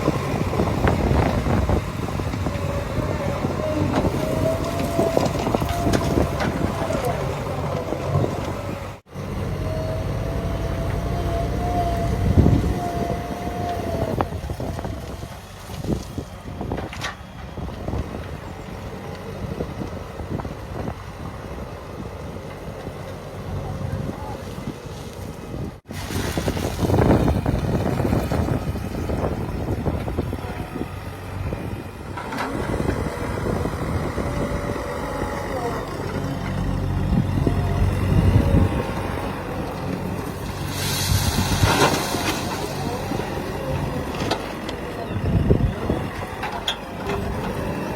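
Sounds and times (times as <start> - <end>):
wind noise on microphone: 0.0 - 8.9, 9.8 - 22.4, 23.7 - 44.4, 45.0 - 46.5
heavy vehicle engine rumbling: 0.0 - 47.9
rushing hiss: 40.6 - 42.5.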